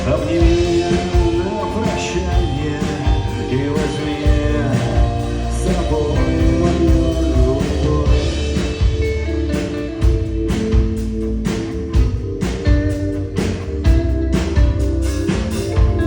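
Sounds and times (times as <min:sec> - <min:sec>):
person singing: 0:00.0 - 0:09.0
drums: 0:00.0 - 0:16.0
electric guitar: 0:00.0 - 0:16.0.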